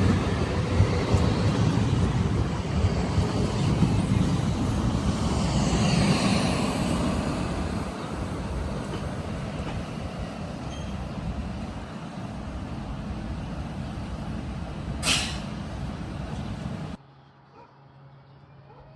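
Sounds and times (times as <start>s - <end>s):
train rumble passing: 0.0s - 17.0s.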